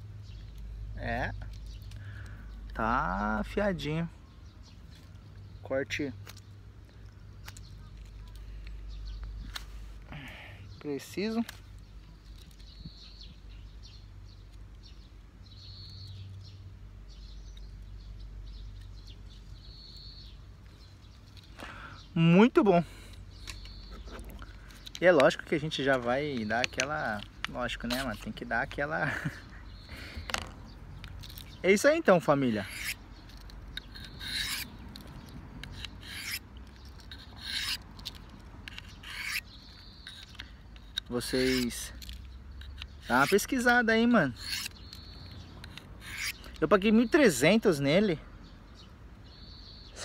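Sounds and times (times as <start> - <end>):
birds chirping: 0.0 - 50.0
knife rasping on sharpener: 32.5 - 33.0, 33.8 - 42.0, 42.6 - 45.0, 45.6 - 46.5.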